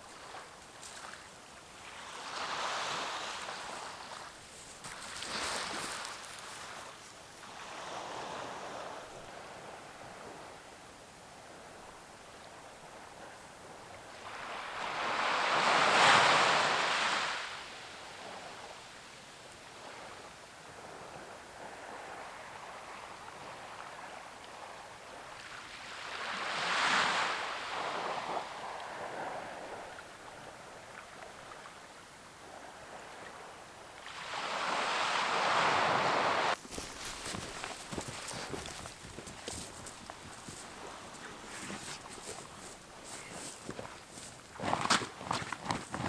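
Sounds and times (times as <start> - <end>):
waves breaking on shore: 0.0 - 9.6, 14.1 - 17.7, 34.0 - 46.0
low surf wash: 1.8 - 9.8, 34.0 - 45.2.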